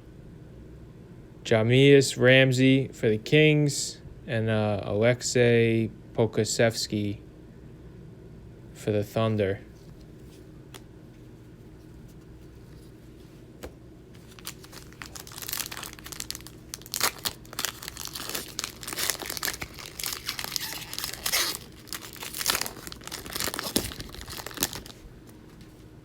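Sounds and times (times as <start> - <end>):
plastic wrapper tearing and crinkling: 14.2 - 25.6.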